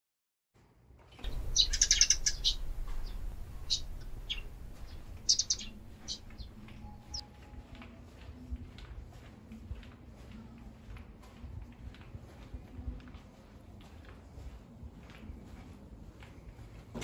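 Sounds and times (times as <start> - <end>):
small birds chirping: 1.2 - 7.3
low steady hum: 1.2 - 8.8.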